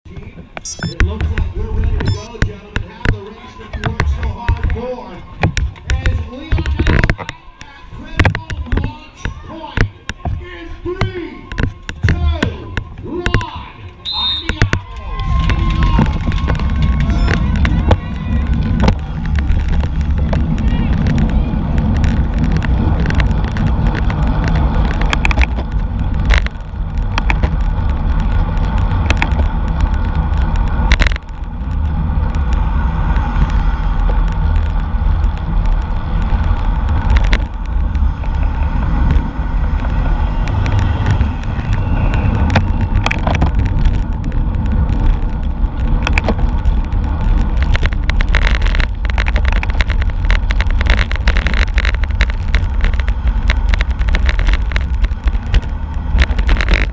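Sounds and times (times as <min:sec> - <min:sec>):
road and tyre noise: 0:00.0 - 0:56.9
sharp clicks: 0:00.6 - 0:03.2, 0:11.0 - 0:18.0, 0:47.3 - 0:56.9
wind buffeting microphone: 0:14.8 - 0:56.9.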